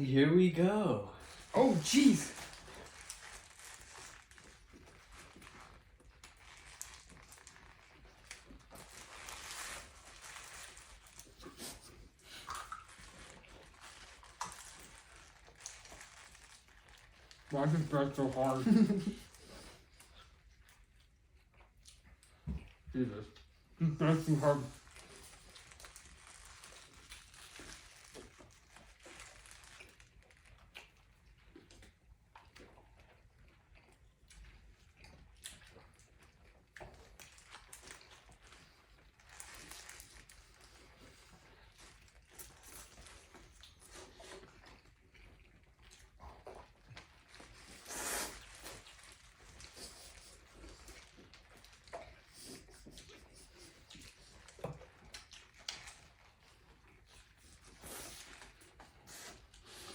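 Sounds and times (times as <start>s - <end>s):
paper wrappers rustling: 1.2s - 11.7s, 12.8s - 19.6s, 24.0s - 30.3s
chewing food: 1.2s - 59.9s.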